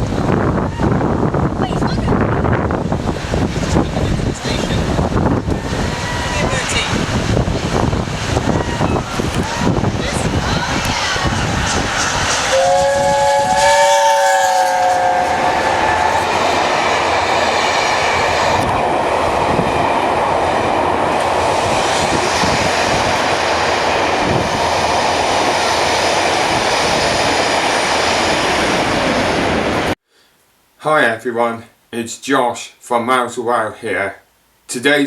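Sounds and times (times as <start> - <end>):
train passing with wheel noise: 0.0 - 30.0
train horn chord: 12.5 - 16.6.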